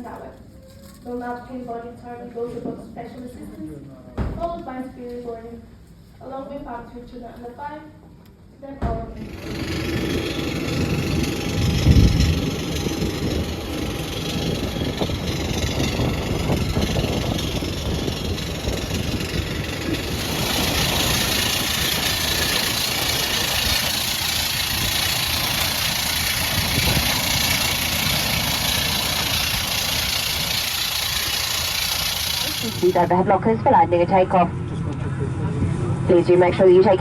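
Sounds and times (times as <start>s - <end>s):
low cabin rumble: 8.8s - 37.0s.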